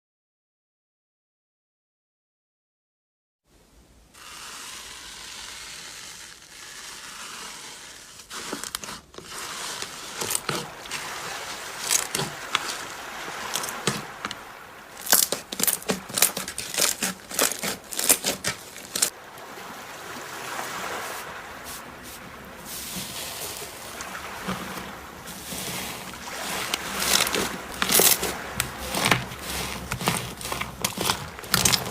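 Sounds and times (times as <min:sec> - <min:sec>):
slime squished by hand: 0:26.4 - 0:31.9.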